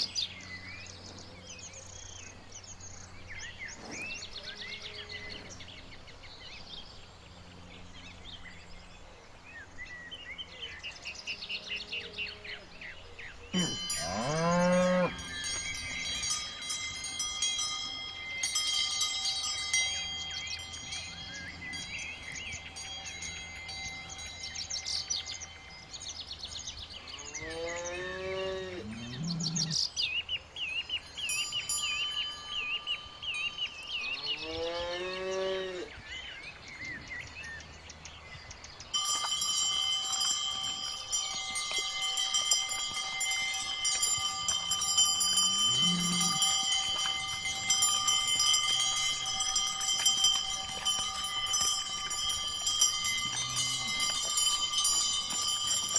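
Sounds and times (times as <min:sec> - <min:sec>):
cow bells ringing: 0:13.5 - 0:29.8, 0:30.8 - 0:34.9, 0:38.7 - 0:55.9
cow mooing: 0:13.6 - 0:15.3, 0:27.1 - 0:29.8, 0:34.2 - 0:35.9, 0:45.4 - 0:46.6.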